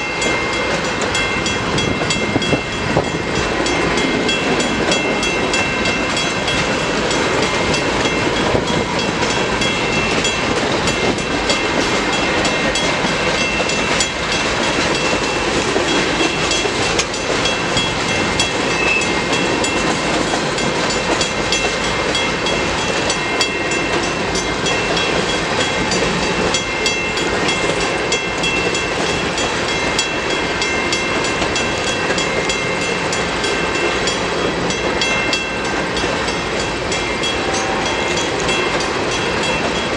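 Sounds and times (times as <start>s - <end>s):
thin high ringing tones: 0.0s - 19.8s.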